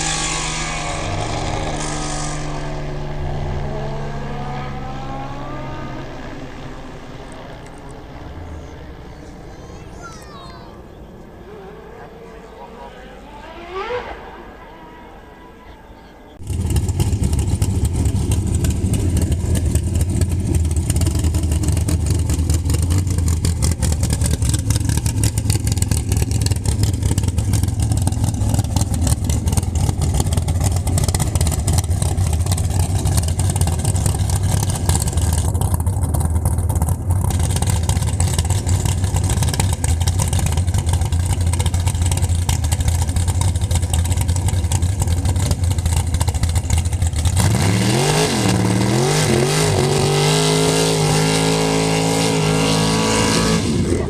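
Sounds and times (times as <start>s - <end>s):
short rising whine: 0.0s - 9.5s
car engine running: 0.0s - 14.0s, 16.3s - 54.0s.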